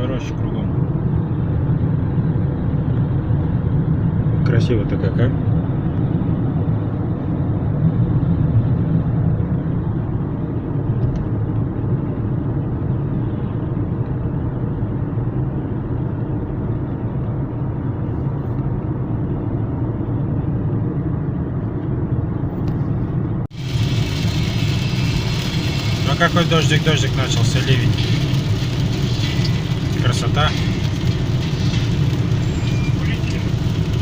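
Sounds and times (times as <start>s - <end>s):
car road and engine noise: 0.0s - 34.0s
heavy rain on car: 23.5s - 34.0s.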